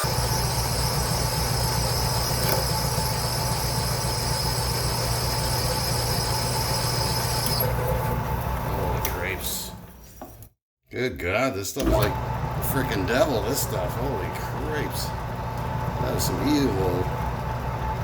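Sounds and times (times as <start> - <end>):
metal lathe running: 0.0 - 8.0, 11.8 - 18.0.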